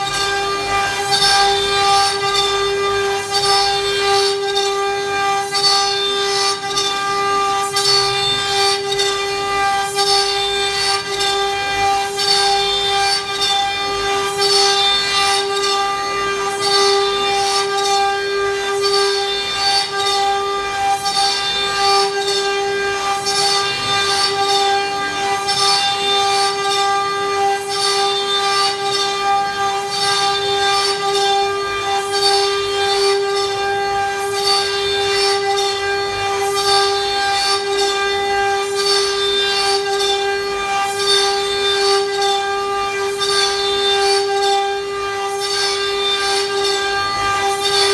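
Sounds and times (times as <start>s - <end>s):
router spindle whine: 0.0s - 47.9s
hissing wood cutting: 45.4s - 47.9s.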